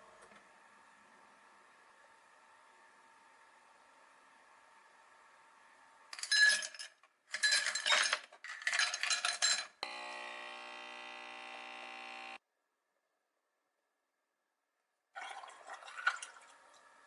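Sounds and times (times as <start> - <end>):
multi-toned hum: 9.8 - 12.4.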